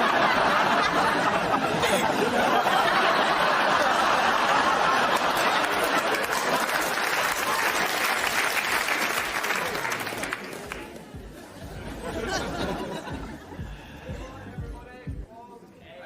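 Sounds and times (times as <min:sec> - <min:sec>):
crowd chatter: 0:00.0 - 0:16.0
audience applauding: 0:02.6 - 0:11.3.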